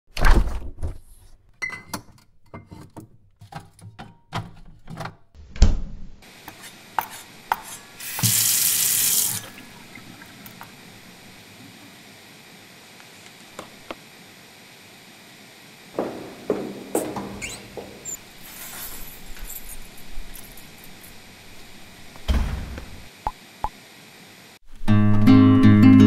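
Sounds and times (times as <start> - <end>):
water tap running: 7.9 - 11.6
heavy thumps: 16.0 - 18.4.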